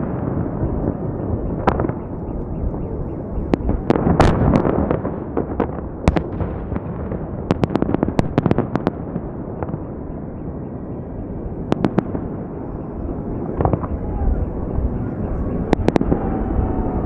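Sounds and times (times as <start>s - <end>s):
fireworks bursting in sharp cracks: 0.0s - 10.1s, 10.8s - 14.0s
steady background noise: 0.0s - 17.0s.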